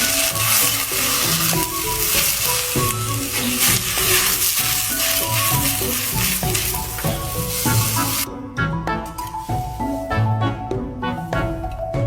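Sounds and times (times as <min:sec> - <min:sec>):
food sizzling in a pan: 0:00.0 - 0:08.3
stirring scrape and clatter: 0:00.0 - 0:08.3
soft background music: 0:00.0 - 0:12.0.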